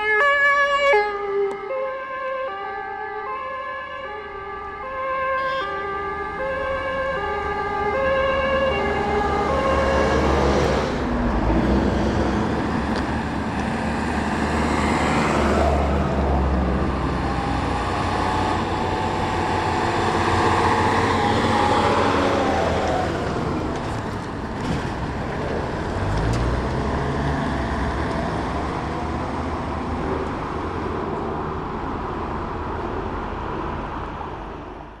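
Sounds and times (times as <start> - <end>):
two-tone siren: 0.0 - 10.7, 16.9 - 23.0
vehicles passing: 0.0 - 35.0.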